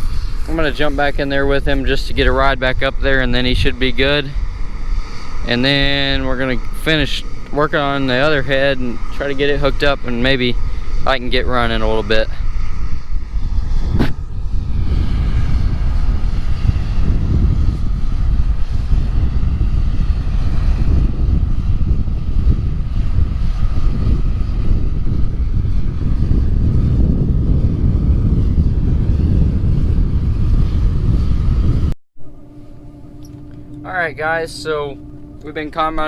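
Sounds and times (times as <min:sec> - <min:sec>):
combine harvester rumbling: 0:00.0 - 0:12.2, 0:32.2 - 0:36.0
faint machinery whine: 0:00.0 - 0:36.0.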